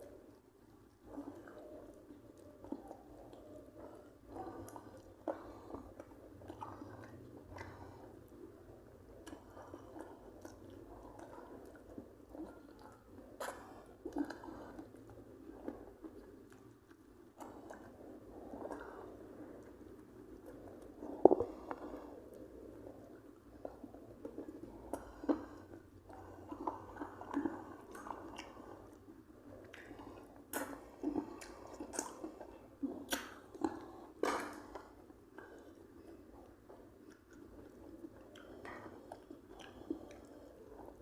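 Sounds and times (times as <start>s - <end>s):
person chewing food: 0.0s - 41.0s.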